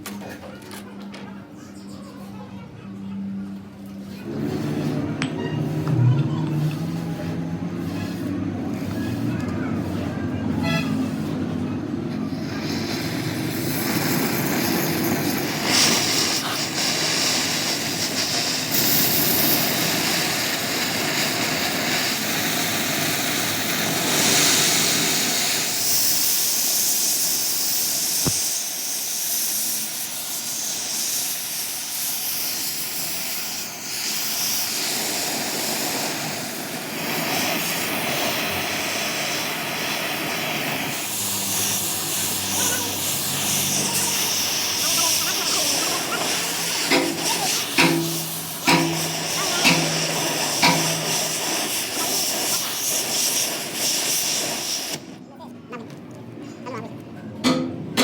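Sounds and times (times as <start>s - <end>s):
loud metalworking hiss: 6.6s - 55.2s.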